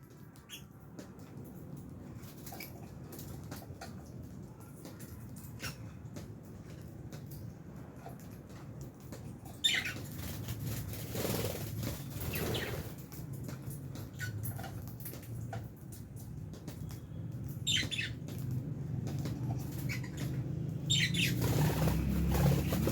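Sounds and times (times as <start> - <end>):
wing flapping: 9.8 - 13.3, 18.4 - 22.9
high bird chirp: 17.6 - 18.2, 19.6 - 22.9.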